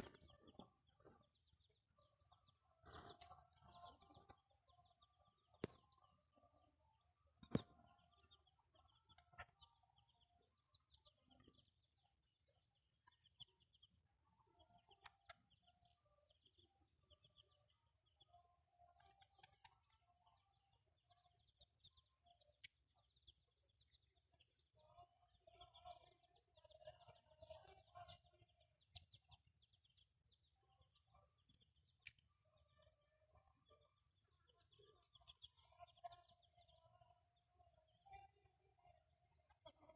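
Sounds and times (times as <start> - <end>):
chickens clucking: 0.0 - 6.6, 7.4 - 13.9, 22.6 - 36.9.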